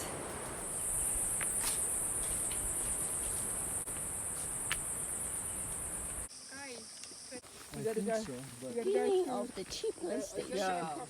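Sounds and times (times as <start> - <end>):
high insect drone: 0.0 - 8.2.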